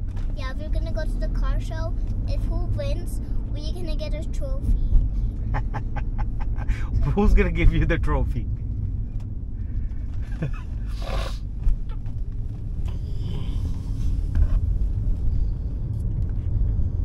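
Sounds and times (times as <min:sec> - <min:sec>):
car rumble from inside cabin: 0:00.0 - 0:17.0.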